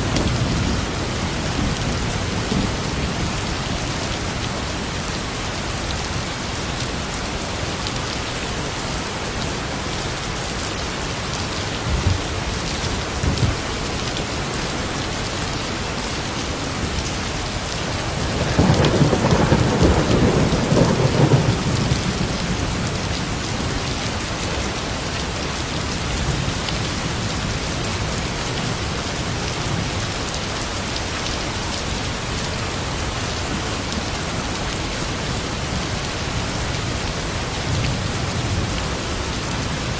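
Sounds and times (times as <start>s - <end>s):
steady rain: 0.0s - 39.9s
thunder rumble: 18.1s - 23.2s.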